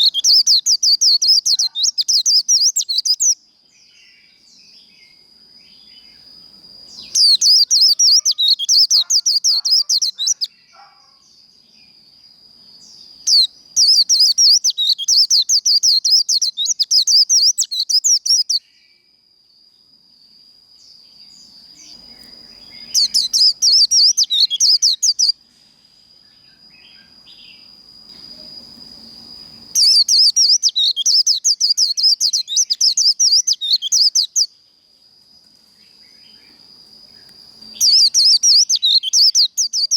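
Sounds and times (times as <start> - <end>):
bird warbling song: 0.0 - 6.3, 6.9 - 11.4, 12.8 - 18.7, 21.3 - 25.4, 29.6 - 34.5, 37.2 - 39.9.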